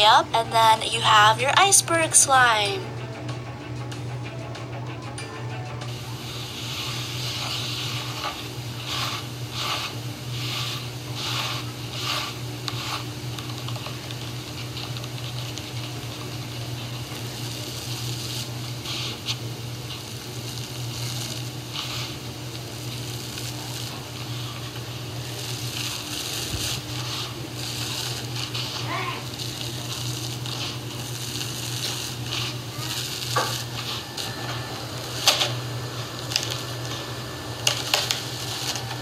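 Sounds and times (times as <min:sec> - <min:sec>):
steady low hum: 0:00.0 - 0:39.0
slime crust crackling: 0:20.7 - 0:39.0.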